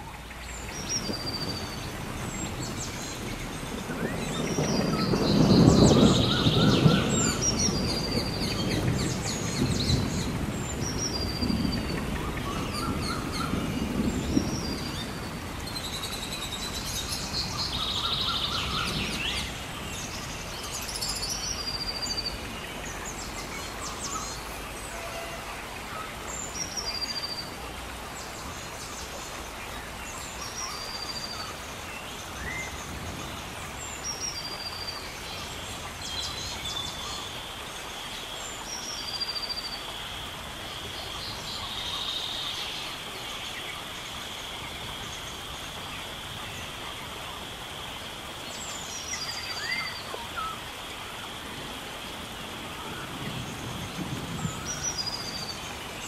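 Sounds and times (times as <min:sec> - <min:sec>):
birds calling: 0:00.0 - 0:27.6
water rushing: 0:00.0 - 0:56.0.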